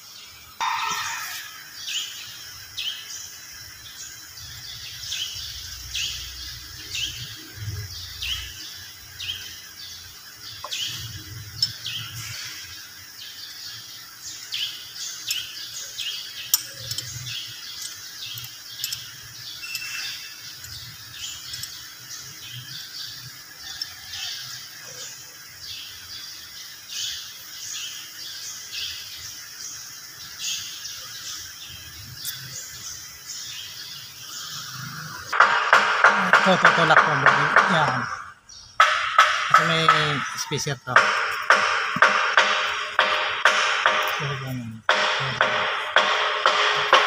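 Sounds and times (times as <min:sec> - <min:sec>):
birds chirping: 0:00.0 - 0:47.0.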